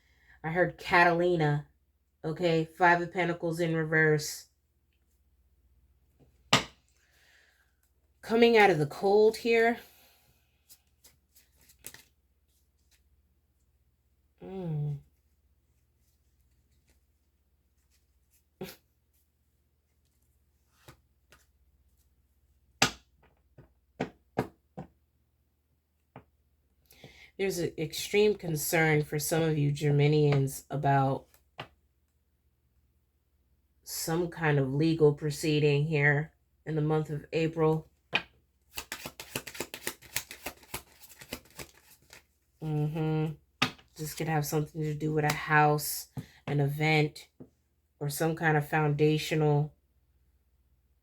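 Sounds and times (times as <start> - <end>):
person speaking: 0.4 - 4.4, 8.2 - 10.0, 14.4 - 15.1, 27.4 - 31.3, 33.9 - 37.9, 42.6 - 47.4
cards being shuffled: 10.6 - 13.1, 20.0 - 21.6, 38.7 - 42.4
cards tapping and snapping on table: 38.2 - 42.2.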